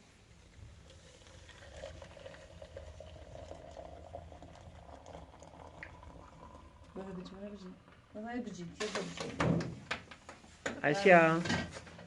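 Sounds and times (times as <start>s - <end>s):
pot of food bubbling: 0.4s - 8.6s.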